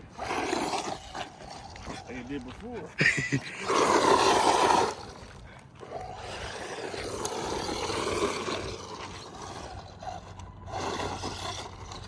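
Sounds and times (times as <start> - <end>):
rc car motor whirring: 0.0 - 12.0
tyres on dirt: 0.0 - 12.0.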